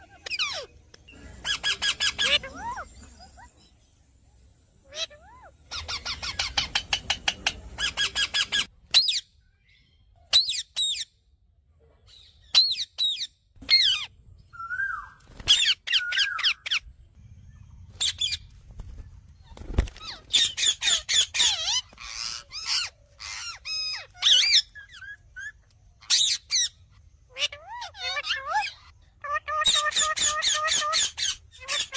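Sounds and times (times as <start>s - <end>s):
parrot squawking: 0.0s - 3.6s, 4.8s - 9.2s, 12.6s - 16.9s, 20.0s - 31.9s.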